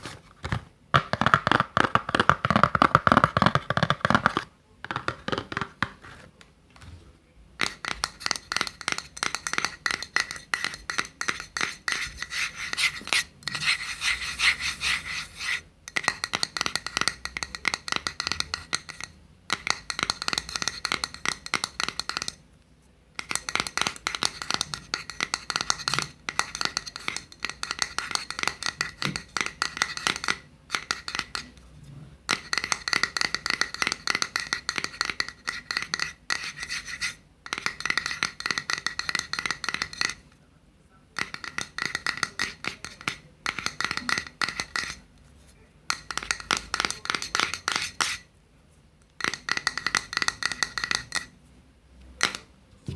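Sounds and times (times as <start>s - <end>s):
scratching and rubbing close to microphone: 12.0s - 15.6s.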